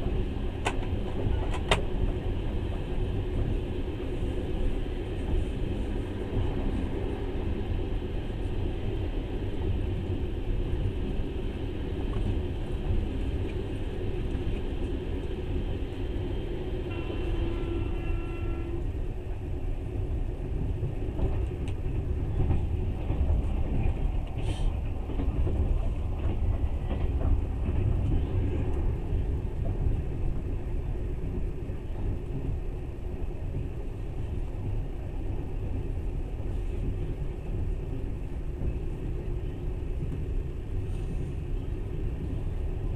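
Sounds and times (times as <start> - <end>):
passing freight train clatter: 0.0 - 42.9
train rumbling on rails: 0.0 - 42.9.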